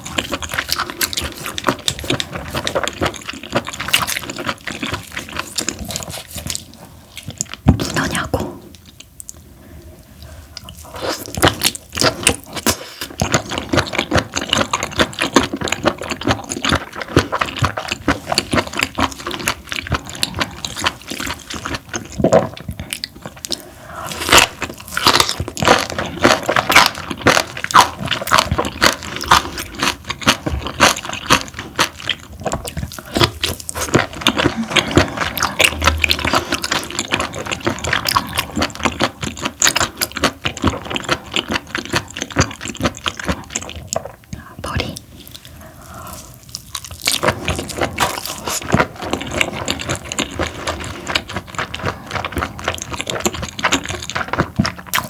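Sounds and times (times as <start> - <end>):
wet chewing smacks and clicks: 0.0 - 9.4, 10.2 - 55.0.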